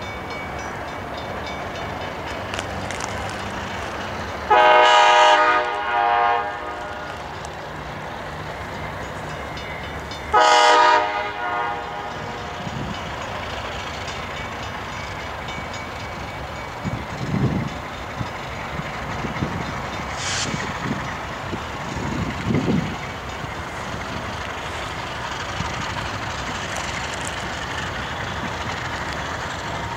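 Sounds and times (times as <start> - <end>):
locomotive air horn blasts: 4.5 - 7.3, 10.3 - 12.5.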